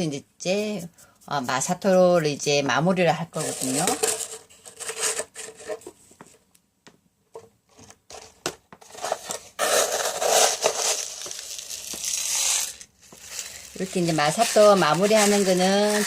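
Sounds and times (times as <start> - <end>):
grit clicks and rustles: 8.9 - 16.0.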